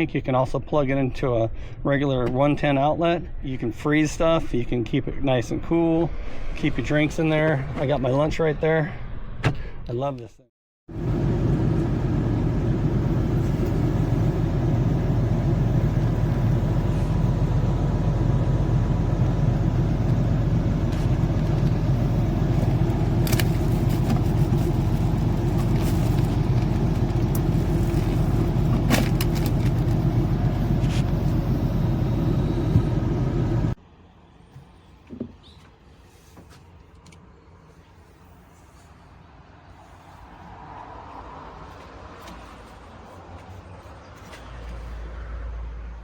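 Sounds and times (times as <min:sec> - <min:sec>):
car road and engine rumble: 0:10.9 - 0:33.8.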